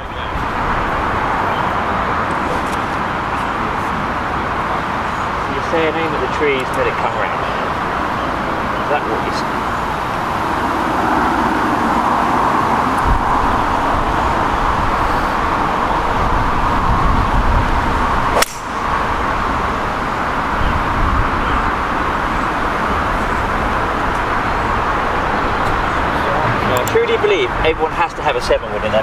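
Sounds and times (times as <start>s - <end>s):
strong wind on microphone: 0.0s - 29.0s
sharp click: 18.4s - 18.7s.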